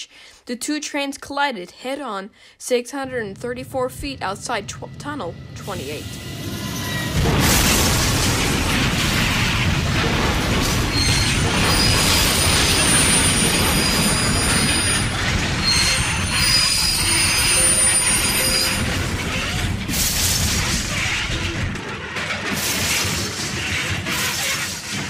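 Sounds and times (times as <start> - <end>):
heavy train rumble: 3.0 - 23.0
rushing grinding bursts: 6.0 - 21.7
steel wheels squealing on rail: 6.1 - 7.3, 10.7 - 21.6.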